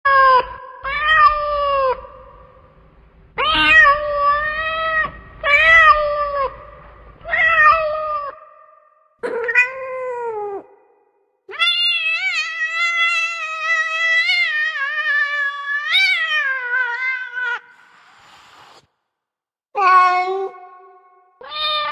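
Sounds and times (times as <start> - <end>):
cat meowing: 3.4 - 6.7, 11.5 - 17.8, 19.8 - 20.8, 21.4 - 21.9.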